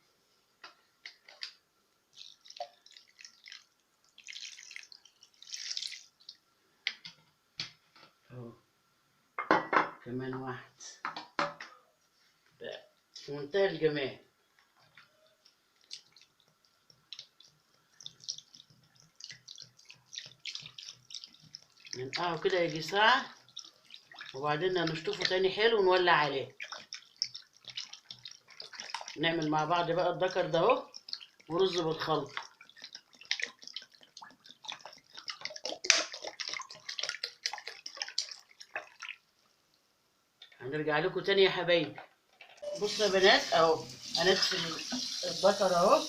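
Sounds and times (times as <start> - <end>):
water splashing and dripping: 1.0 - 7.0, 15.4 - 39.5.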